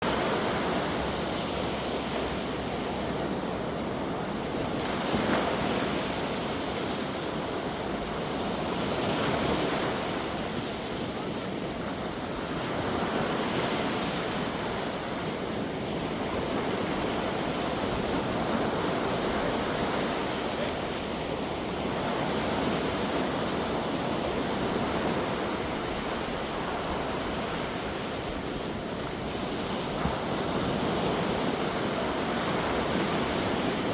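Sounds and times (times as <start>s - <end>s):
sea waves washing onto beach: 0.0s - 33.9s.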